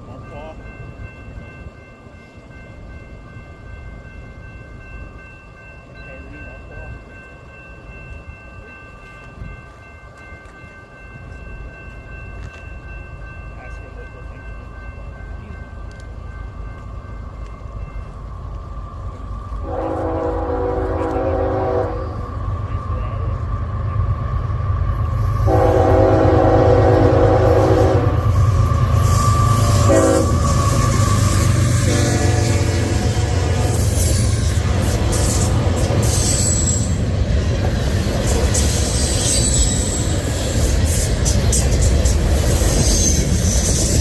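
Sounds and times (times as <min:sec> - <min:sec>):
freight train rumbling past: 0:00.0 - 0:44.0
locomotive air horn blasts: 0:19.6 - 0:22.2, 0:25.4 - 0:28.3, 0:29.5 - 0:34.0
high-pitched whine: 0:28.0 - 0:44.0.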